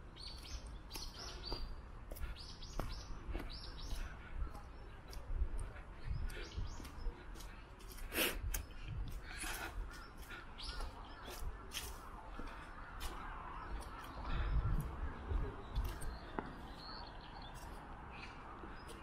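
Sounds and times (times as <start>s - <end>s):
steady low rumble: 0.0s - 19.0s
harsh cawing bird calls: 8.6s - 19.0s.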